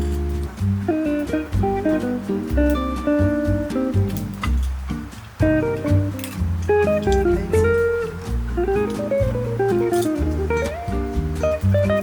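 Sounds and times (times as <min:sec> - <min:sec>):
plucked acoustic guitar melody: 0:00.0 - 0:12.0
steady bass line: 0:00.0 - 0:12.0.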